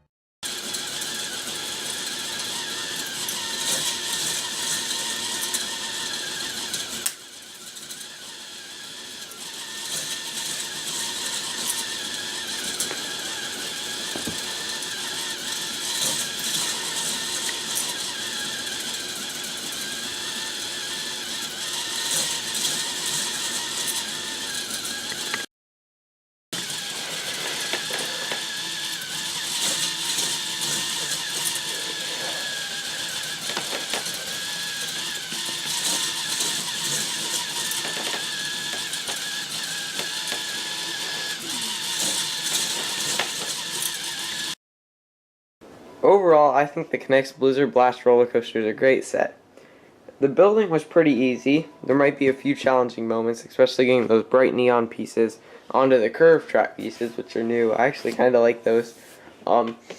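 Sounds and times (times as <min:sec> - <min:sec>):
toy chain lift clattering: 0:00.4 - 0:25.4, 0:26.6 - 0:44.6.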